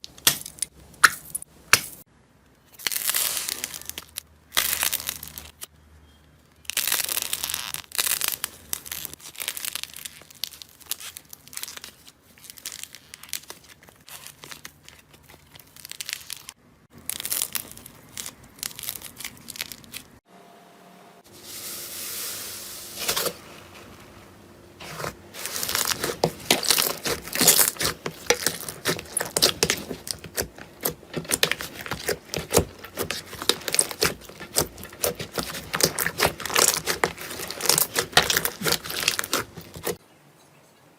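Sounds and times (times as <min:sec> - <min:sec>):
slime crackling and popping: 0:02.7 - 0:05.6, 0:06.6 - 0:20.2, 0:24.8 - 0:40.0.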